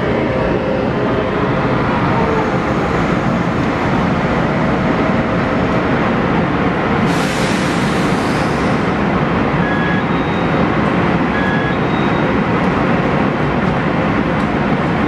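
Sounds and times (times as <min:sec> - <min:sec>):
electric train rumbling to a stop: 0:00.0 - 0:15.0
loud hiss: 0:07.0 - 0:08.9.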